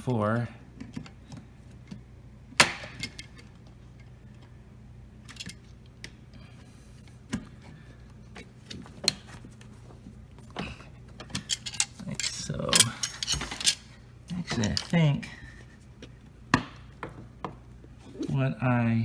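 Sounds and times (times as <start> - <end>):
appliance parts clicking and knocking: 2.6 - 4.5, 10.4 - 15.2.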